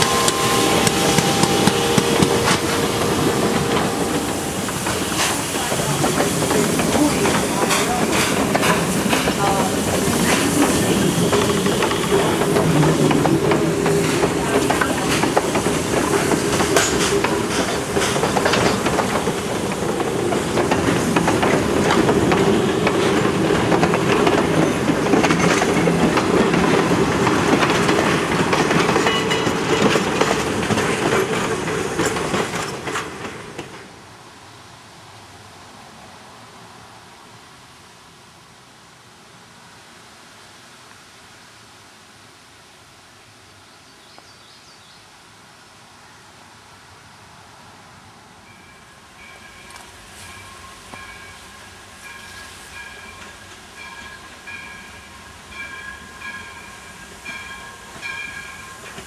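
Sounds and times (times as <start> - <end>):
steam hiss: 0.0 - 33.6, 49.2 - 59.0
train wheels clicking over rail joints: 0.0 - 34.0.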